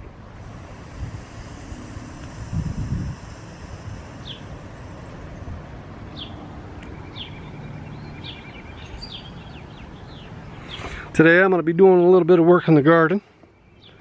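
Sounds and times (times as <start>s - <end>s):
low background rumble: 0.0s - 10.8s
small birds chirping: 0.4s - 11.1s.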